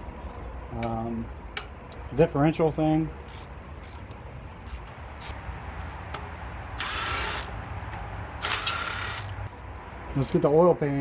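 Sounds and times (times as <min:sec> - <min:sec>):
ratchet wrench clicking: 0:03.3 - 0:05.4, 0:06.8 - 0:07.6, 0:08.4 - 0:09.4.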